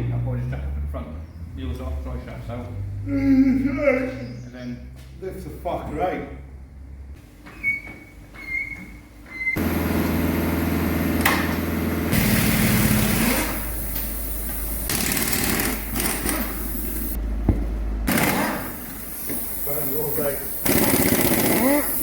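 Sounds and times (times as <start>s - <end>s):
small motor running: 20.6s - 22.0s.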